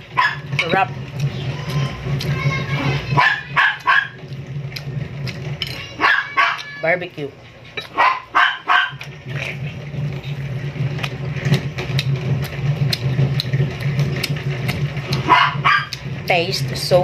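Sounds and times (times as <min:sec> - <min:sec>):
chewing clicks and smacks: 0:04.3 - 0:05.8, 0:08.9 - 0:09.6, 0:10.9 - 0:16.1.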